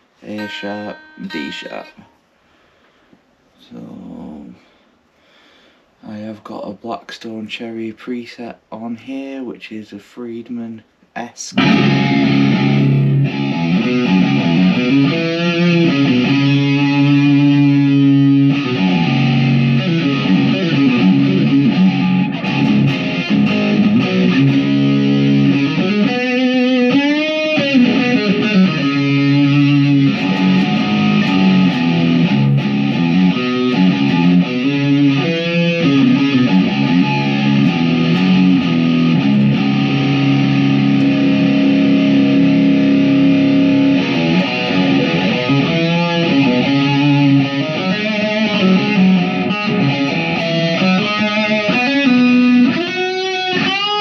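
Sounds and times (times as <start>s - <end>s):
distorted electric guitar riffing: 11.6s - 54.0s.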